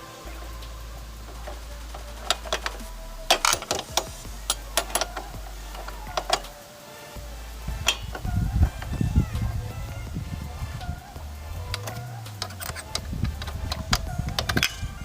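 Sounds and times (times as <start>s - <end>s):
wrench clinking on metal nut: 11.7s - 14.8s.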